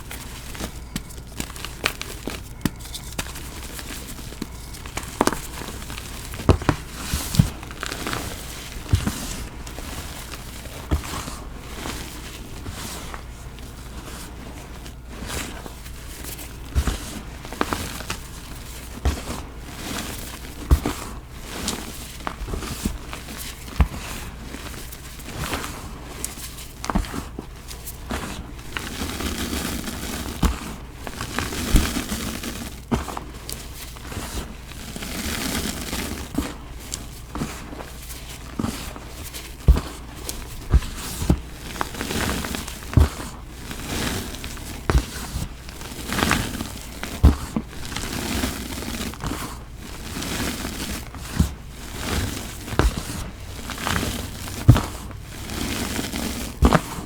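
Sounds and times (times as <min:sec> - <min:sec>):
cleaning powder crunching by hand: 0:28.0 - 0:57.0.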